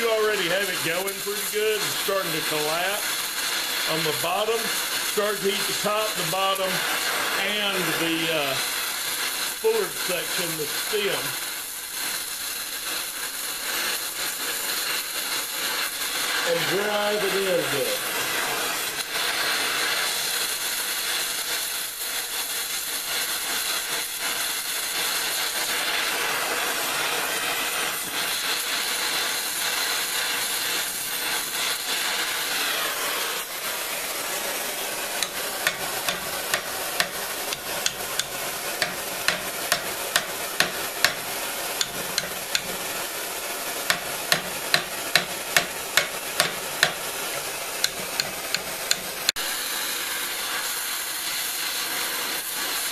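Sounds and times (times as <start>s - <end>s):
gas torch hissing: 0.0s - 52.9s
hammer blows on pipe: 35.2s - 42.8s, 43.9s - 47.0s.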